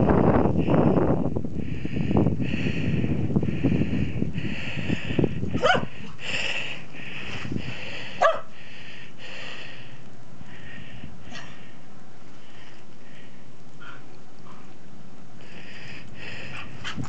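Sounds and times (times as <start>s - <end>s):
dog barking: 5.6s - 5.9s, 8.2s - 8.5s.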